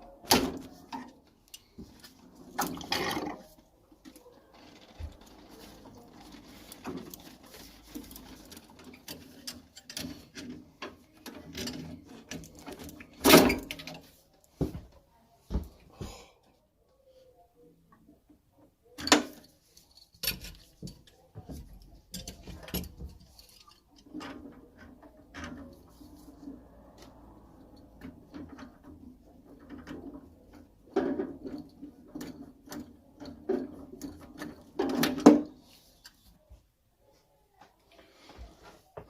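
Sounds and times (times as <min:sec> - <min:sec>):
hand tools clicking and knocking: 0:04.1 - 0:14.8, 0:19.0 - 0:36.2.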